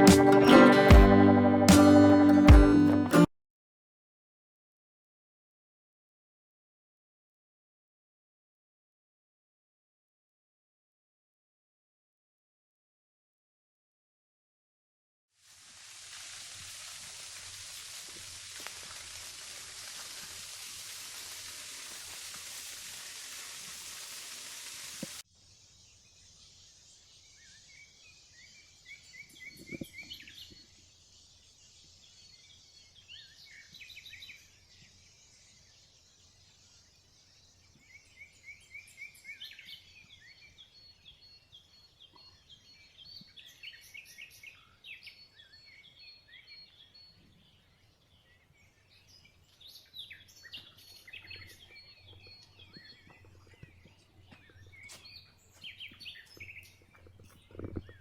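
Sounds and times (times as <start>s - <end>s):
rain falling: 15.4s - 25.2s
quiet forest background: 15.4s - 58.0s
small birds chirping: 16.0s - 58.0s.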